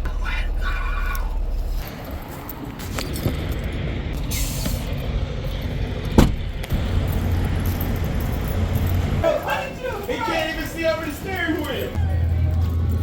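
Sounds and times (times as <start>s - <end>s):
diesel truck engine idling: 0.0s - 1.8s, 3.7s - 13.0s
air hiss: 4.3s - 5.0s
loud thump: 6.2s - 6.7s.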